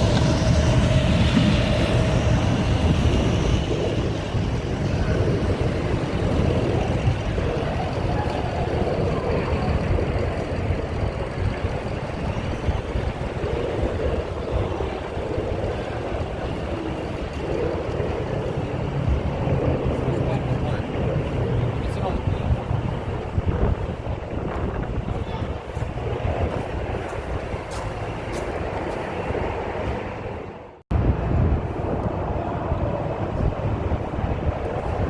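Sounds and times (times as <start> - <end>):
faint voices: 0.0 - 27.2
low rumble of vehicles: 0.0 - 35.0.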